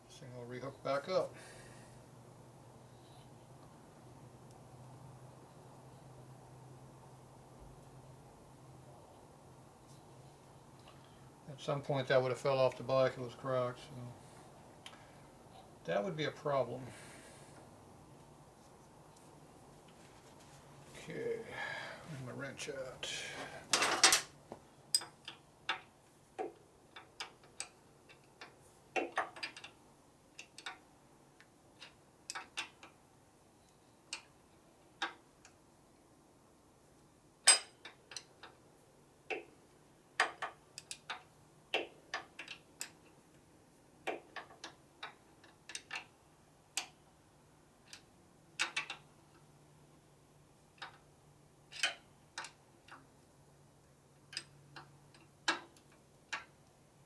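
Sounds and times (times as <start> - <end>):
faint low hum: 0.0 - 24.8.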